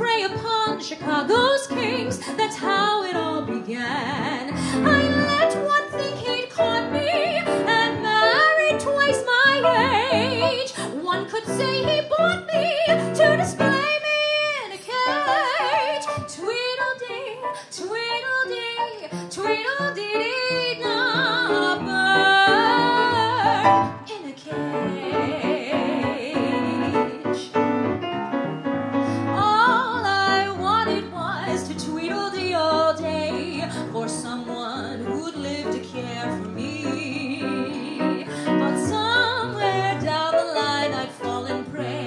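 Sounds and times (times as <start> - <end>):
woman singing: 0.0 - 27.8, 29.1 - 42.0
piano accompaniment: 0.0 - 42.0.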